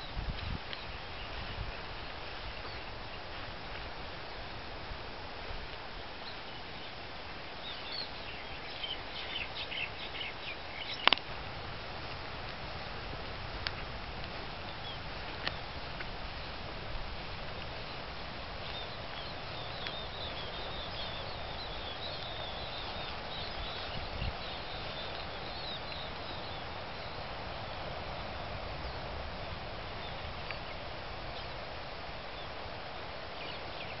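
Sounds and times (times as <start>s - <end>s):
wind noise: 0.0s - 34.0s
small birds chirping: 6.2s - 11.7s, 17.6s - 29.0s.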